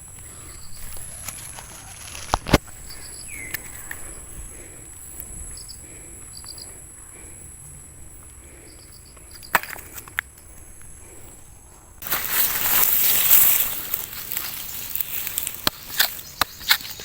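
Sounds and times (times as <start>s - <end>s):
faint bird chirps: 0.2s - 4.3s, 14.4s - 17.0s.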